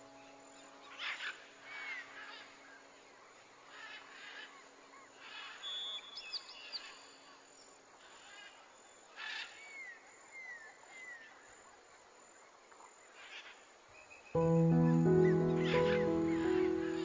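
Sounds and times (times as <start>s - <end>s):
faint held background tone: 14.4s - 17.0s.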